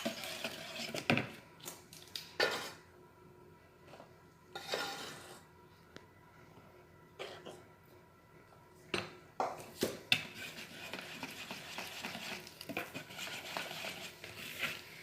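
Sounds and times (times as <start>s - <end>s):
stirring cake batter: 0.0s - 1.4s, 10.1s - 15.0s
scraping in bowl: 4.5s - 5.5s, 10.2s - 15.0s.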